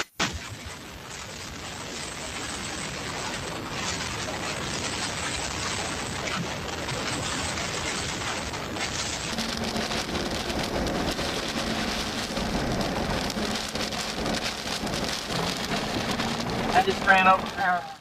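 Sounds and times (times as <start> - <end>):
heavy rain: 0.0 - 18.0.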